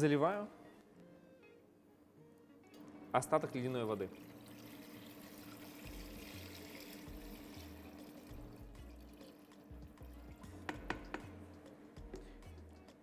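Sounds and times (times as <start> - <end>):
water pouring into pot: 3.8 - 9.8.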